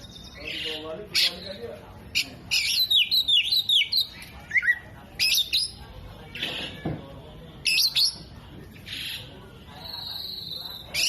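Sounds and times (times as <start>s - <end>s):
bird singing whistled notes: 2.5s - 5.8s, 9.8s - 11.0s.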